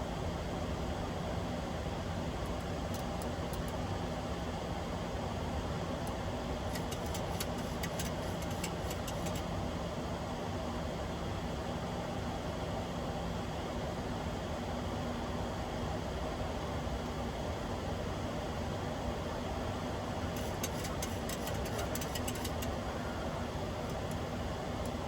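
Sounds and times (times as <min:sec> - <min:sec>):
airplane cockpit engine rumble: 0:00.4 - 0:10.7, 0:13.4 - 0:25.0
faint thin clicks: 0:20.4 - 0:22.8.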